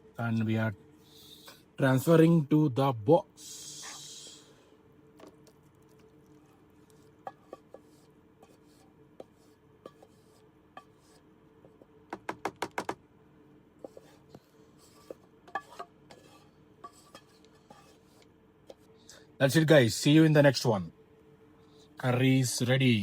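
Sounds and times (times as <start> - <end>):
faint hum: 0.0 - 23.0
spoon scraping cooking pot: 5.9 - 11.3, 13.8 - 18.8.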